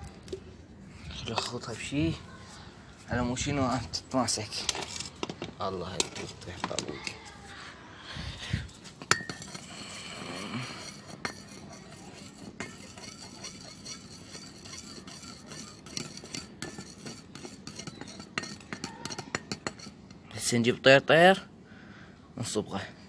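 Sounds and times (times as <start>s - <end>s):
utensil clinking and scraping container: 3.7s - 7.5s, 8.8s - 20.2s.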